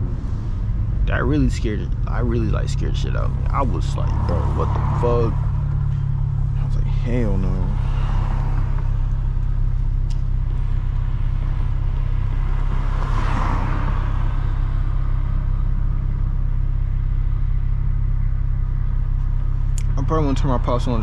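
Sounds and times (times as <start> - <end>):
car exhaust drone: 0.0 - 21.0.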